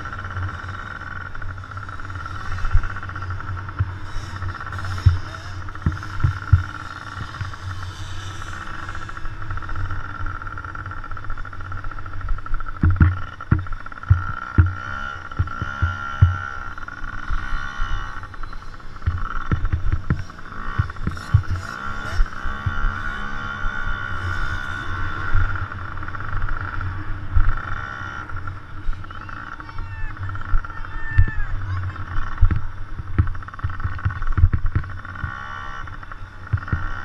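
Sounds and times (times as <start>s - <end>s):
dirt bike engines whining: 0.0s - 37.0s
low thumps and knocks: 32.4s - 34.9s.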